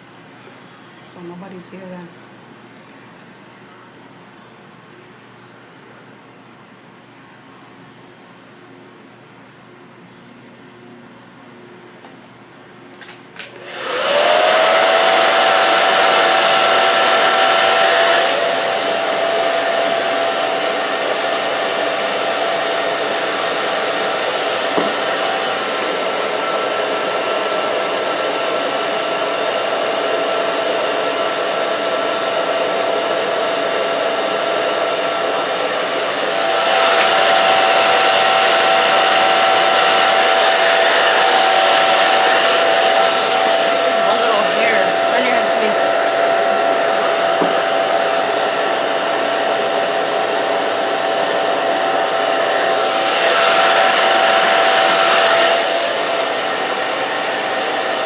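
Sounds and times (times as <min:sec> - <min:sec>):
blow dryer motor whine and air: 0:13.4 - 0:58.0.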